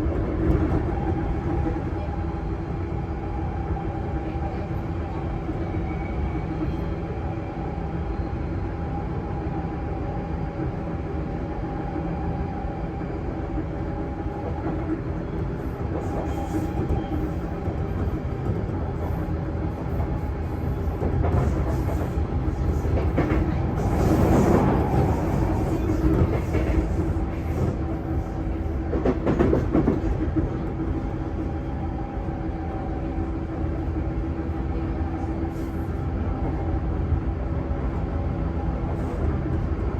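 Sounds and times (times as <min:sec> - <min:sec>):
wheel and rail rumble: 0:13.6 - 0:39.9.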